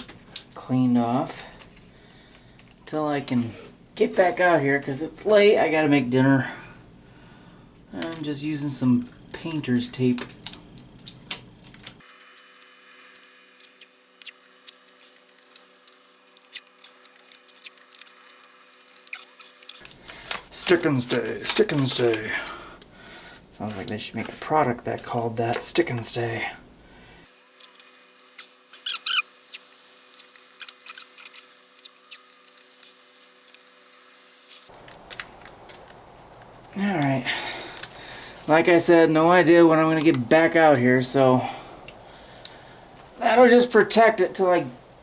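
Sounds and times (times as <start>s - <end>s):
tape pulled off roll crackling: 10.1s - 26.2s, 27.5s - 36.8s.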